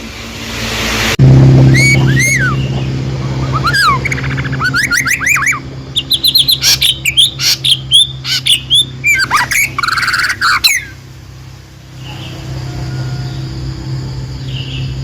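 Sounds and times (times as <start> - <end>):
low hum: 0.0 - 15.0
songbird chirping and whistling: 1.7 - 11.0.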